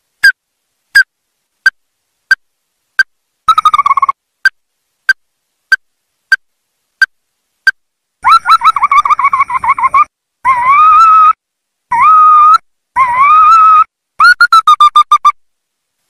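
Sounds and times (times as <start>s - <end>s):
crake calling: 3.0s - 6.4s.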